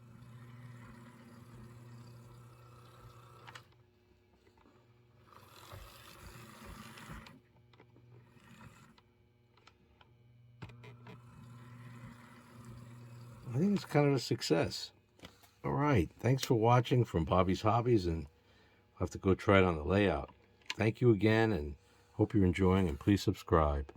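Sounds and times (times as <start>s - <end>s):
model train motor whirring: 0.0s - 3.8s, 4.4s - 7.5s, 8.1s - 9.0s, 10.6s - 14.8s, 22.2s - 23.9s.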